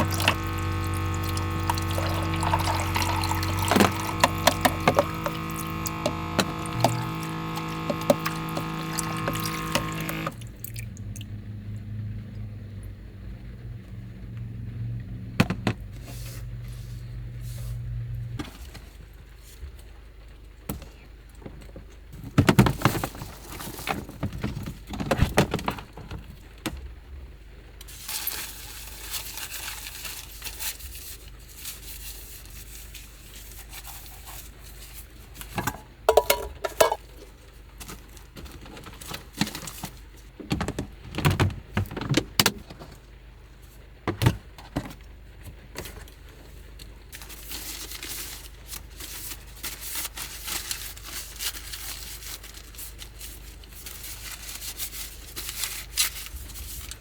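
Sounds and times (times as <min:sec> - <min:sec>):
small objects clattering and rattling: 0:00.0 - 0:10.3, 0:20.8 - 0:26.5, 0:27.9 - 0:43.1
low steady hum: 0:00.0 - 0:19.8, 0:34.8 - 0:43.1.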